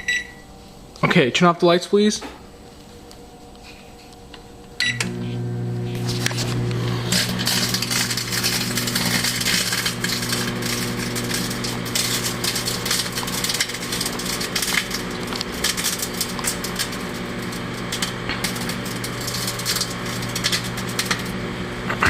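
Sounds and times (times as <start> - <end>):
microwave oven humming: 2.4 - 22.0
discs arcing with crackling snaps: 2.8 - 22.0.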